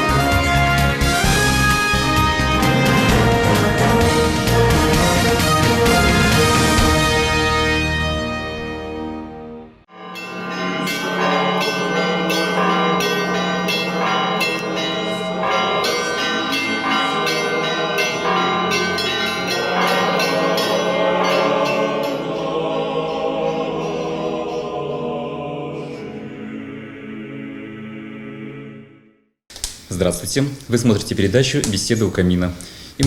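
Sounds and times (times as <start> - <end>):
steady low bell tone: 9.9 - 24.8
church bells ringing: 9.9 - 26.9.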